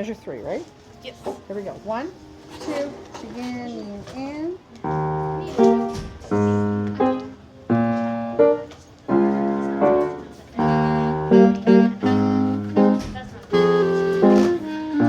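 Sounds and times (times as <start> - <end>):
piano chords: 3.1 - 15.0.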